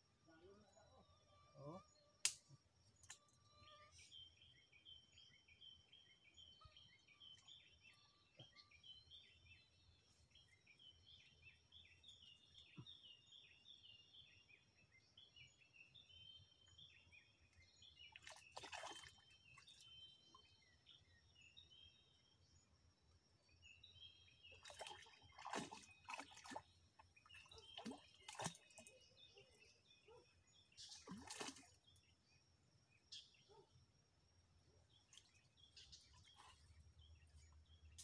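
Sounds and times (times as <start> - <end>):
faint bird chirps: 0.1 - 22.7, 23.4 - 33.8, 34.6 - 38.0
stick splashing in water: 18.1 - 19.3, 24.5 - 28.9, 30.8 - 31.8.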